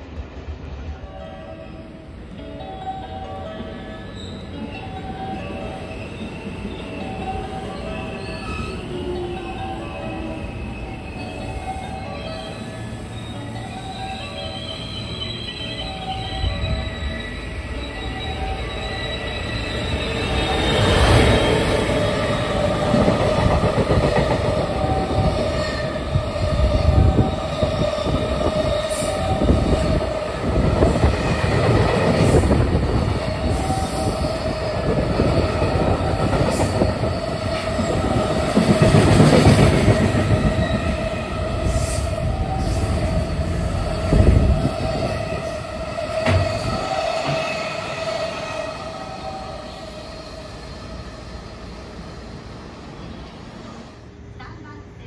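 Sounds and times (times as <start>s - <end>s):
high ringing tone: 2.7s - 22.9s
steel wheels rumbling on rail: 14.0s - 54.8s.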